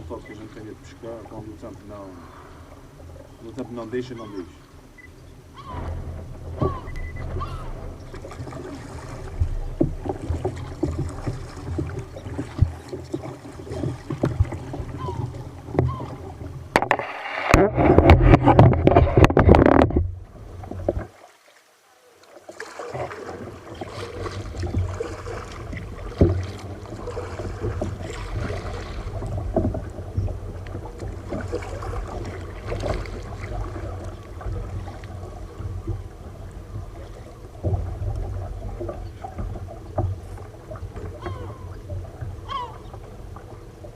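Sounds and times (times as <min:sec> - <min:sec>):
water sloshing against kayak hull: 0:00.0 - 0:43.9
small knocks on hull: 0:05.6 - 0:21.2, 0:23.8 - 0:36.0, 0:37.1 - 0:43.1.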